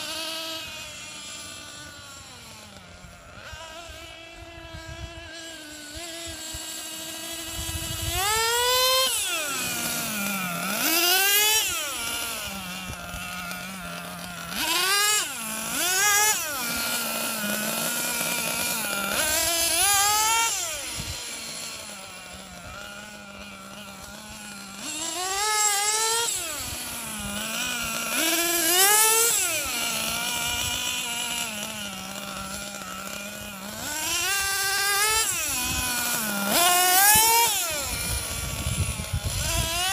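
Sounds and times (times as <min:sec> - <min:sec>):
small two-stroke engine revving: 0:00.0 - 0:39.9.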